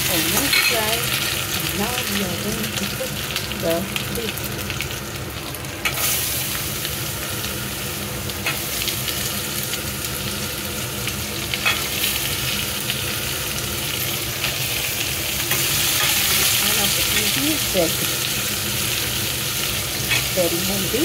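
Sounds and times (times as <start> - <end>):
vegetables sizzling in oil: 0.0 - 21.0.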